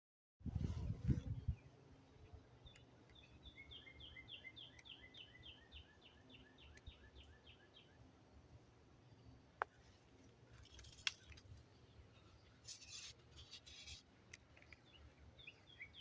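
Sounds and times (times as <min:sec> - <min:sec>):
songbird singing repeated notes: 0:01.2 - 0:08.1, 0:11.8 - 0:16.0.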